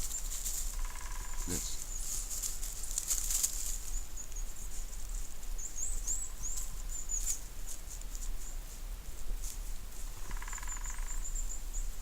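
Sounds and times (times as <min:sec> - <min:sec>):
small bird chirping: 0:05.6 - 0:07.4, 0:10.2 - 0:12.0.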